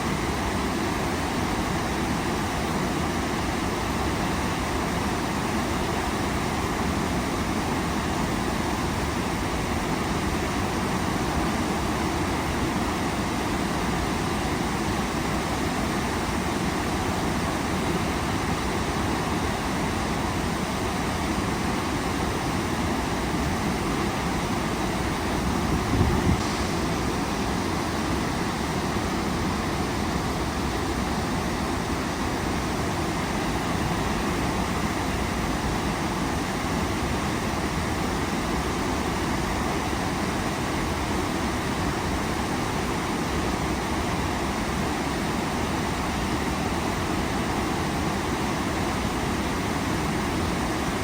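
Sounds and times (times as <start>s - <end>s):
waterfall rushing: 23.2s - 43.1s.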